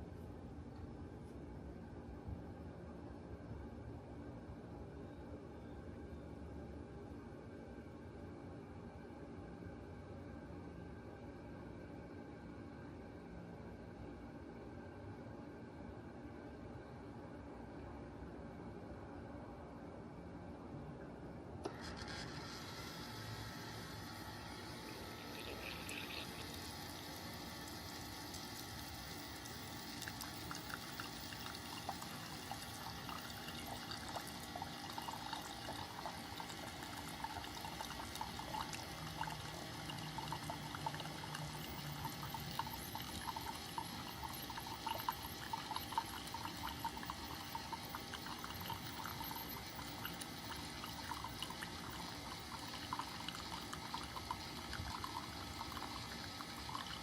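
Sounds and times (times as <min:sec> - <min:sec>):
coffee maker heating water: 0:00.0 - 0:03.5, 0:21.6 - 0:57.0.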